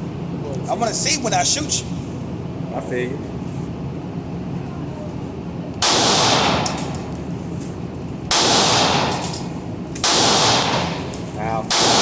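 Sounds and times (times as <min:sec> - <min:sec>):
handgun shots echoing: 0:05.8 - 0:07.0, 0:08.3 - 0:12.0.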